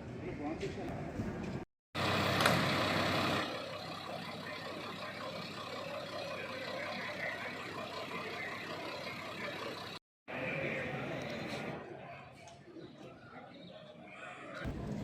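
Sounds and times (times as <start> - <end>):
traffic noise: 0.9 - 11.8.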